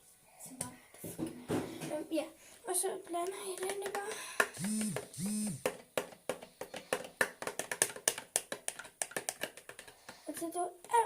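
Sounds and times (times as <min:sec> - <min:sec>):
slime stirred with clicks: 0:05.7 - 0:11.0.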